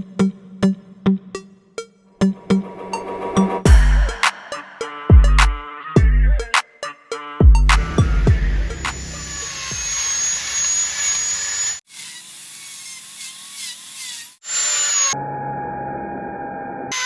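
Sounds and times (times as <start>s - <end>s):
power carving tool whining: 8.1s - 15.2s.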